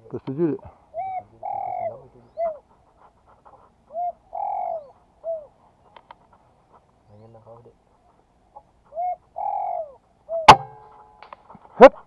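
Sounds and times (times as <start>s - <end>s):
dove cooing: 0.6s - 6.5s, 7.1s - 11.6s
faint clicks: 5.9s - 6.4s.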